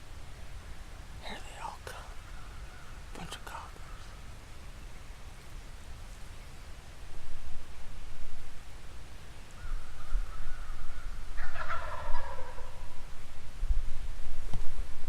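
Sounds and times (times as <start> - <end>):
turkey gobbling: 11.4 - 12.9.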